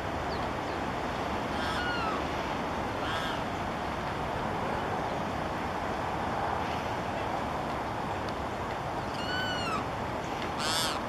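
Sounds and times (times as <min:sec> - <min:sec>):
bird calling: 0:01.6 - 0:02.2, 0:03.0 - 0:03.4, 0:09.1 - 0:09.9, 0:10.6 - 0:11.0.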